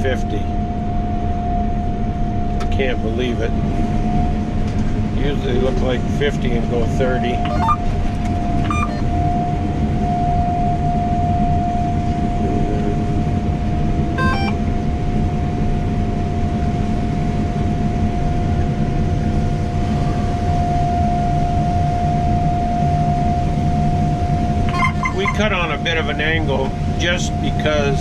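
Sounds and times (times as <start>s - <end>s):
combine harvester engine hum: 0.0s - 28.0s
steady machine whine: 0.0s - 28.0s
short beep: 7.4s - 7.9s, 8.6s - 9.2s, 14.2s - 14.6s, 24.7s - 25.5s.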